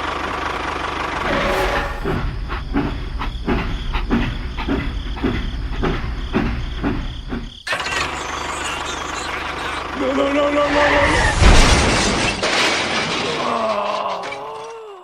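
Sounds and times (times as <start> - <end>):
engine chugging: 2.2 - 10.0.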